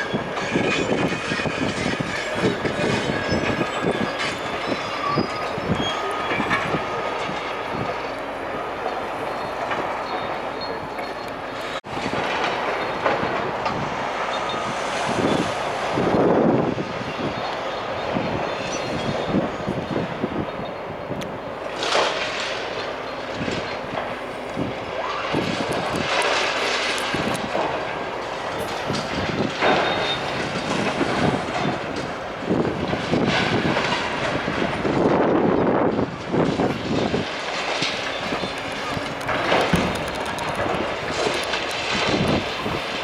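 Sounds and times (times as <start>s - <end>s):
demolition machinery crunching masonry: 0.0s - 43.0s
falling debris crashes: 36.2s - 43.0s.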